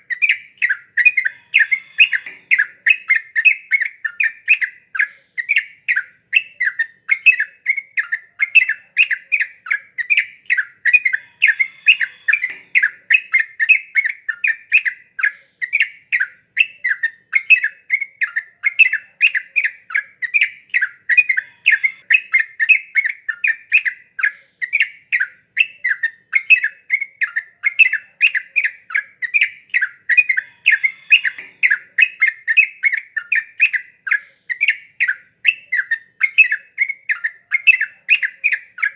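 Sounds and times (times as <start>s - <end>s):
bulbul chattering calls: 0.1s - 7.4s, 8.4s - 14.9s, 27.7s - 38.9s.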